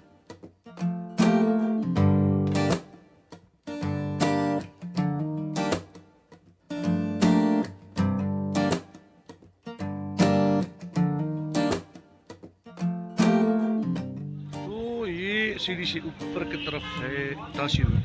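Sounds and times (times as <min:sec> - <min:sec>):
strummed acoustic guitar chords: 0:00.0 - 0:18.0.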